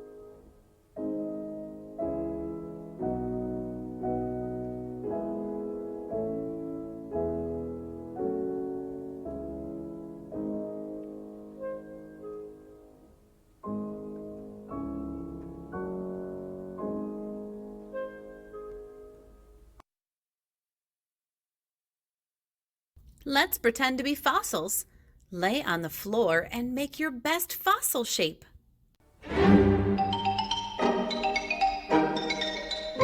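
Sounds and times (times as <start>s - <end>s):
soft slow piano chords: 0.0s - 19.8s.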